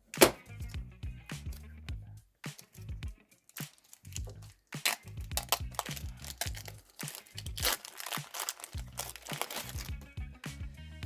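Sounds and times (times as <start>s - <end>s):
background music with bass line: 0.0s - 3.4s, 4.1s - 11.0s
card pack wrapper crinkling: 2.6s - 10.0s.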